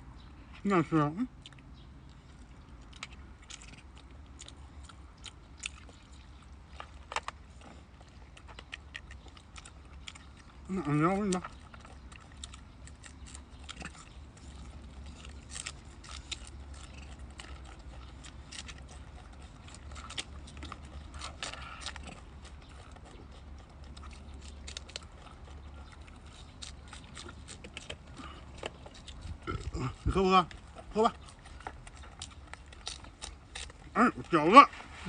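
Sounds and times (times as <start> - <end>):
low steady hum: 0.0 - 35.0
monkeys chewing food: 1.2 - 35.0.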